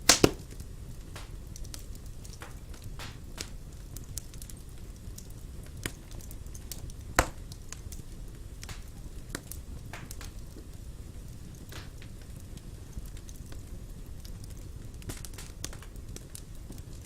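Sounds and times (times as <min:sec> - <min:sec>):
loud pop of fire: 0:00.0 - 0:03.2
wood fire crackling: 0:00.0 - 0:17.0.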